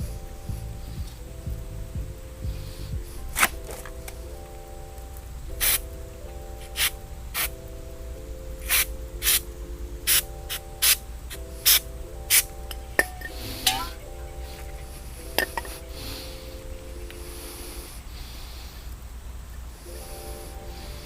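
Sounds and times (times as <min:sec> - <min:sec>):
soft background music: 0:00.0 - 0:21.0
short bursts of spraying hiss: 0:05.6 - 0:05.8, 0:08.6 - 0:09.4.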